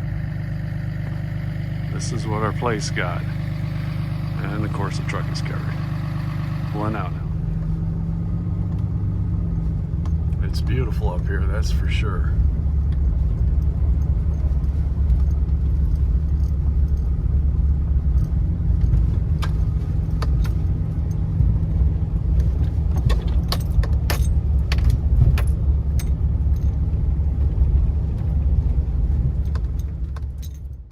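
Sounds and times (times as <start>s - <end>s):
truck engine and road rumble: 0.0s - 30.9s
light clicks and rattles: 18.1s - 21.5s.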